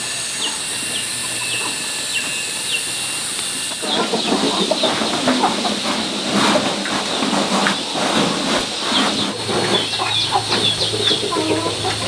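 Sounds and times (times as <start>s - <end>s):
chicks peeping: 0.2s - 12.0s
rustling clattering noise: 4.1s - 12.0s.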